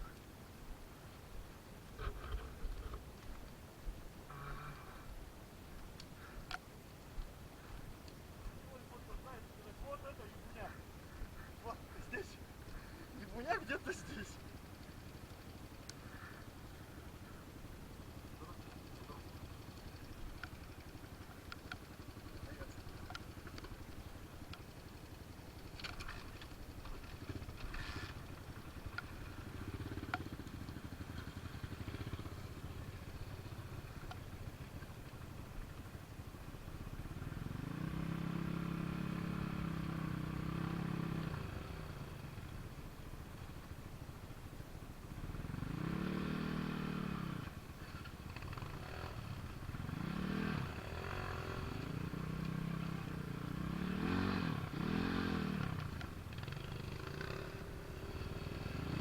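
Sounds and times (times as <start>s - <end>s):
motorcycle engine revving: 2.0s - 3.0s, 4.3s - 5.1s, 24.8s - 35.2s, 36.8s - 42.6s, 45.1s - 59.0s.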